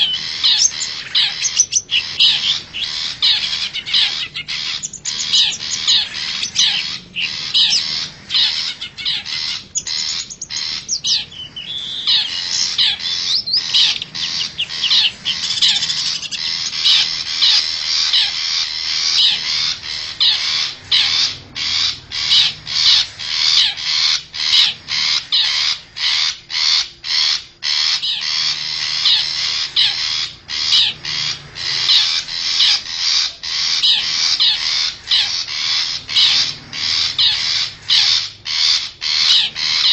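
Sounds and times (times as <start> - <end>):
shrike singing high chattering notes: 0.0 - 27.1.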